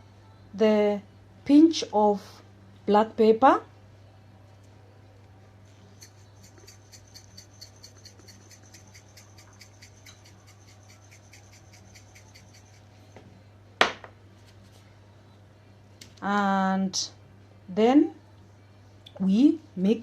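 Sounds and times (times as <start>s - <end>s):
pepper grinder clicking: 6.0s - 12.8s.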